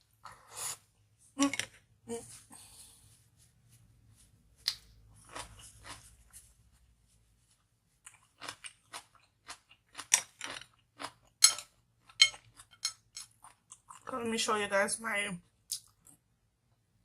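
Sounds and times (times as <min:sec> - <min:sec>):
person chewing food: 0:04.6 - 0:06.8, 0:07.9 - 0:14.1
crisp crunches of food: 0:05.2 - 0:06.2, 0:08.1 - 0:11.4.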